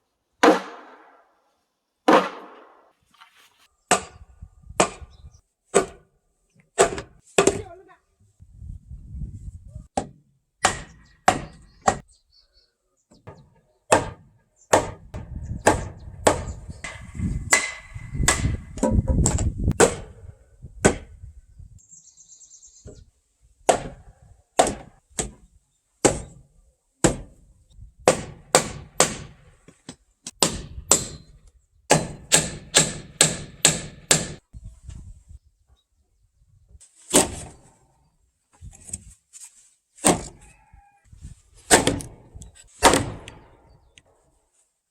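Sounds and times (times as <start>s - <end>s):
sharp strikes on wood: 0.4s - 1.2s, 2.1s - 2.8s, 3.9s - 4.2s, 4.8s - 5.1s, 5.7s - 6.0s, 6.8s - 7.7s, 10.0s - 12.0s, 13.3s - 20.2s, 20.8s - 21.1s, 23.7s - 24.0s, 24.6s - 25.4s, 26.0s - 26.4s, 27.0s - 27.4s, 28.0s - 29.4s, 30.3s - 31.3s, 31.9s - 34.4s, 37.1s - 37.6s, 40.0s - 40.4s, 41.7s - 42.2s, 42.8s - 43.7s.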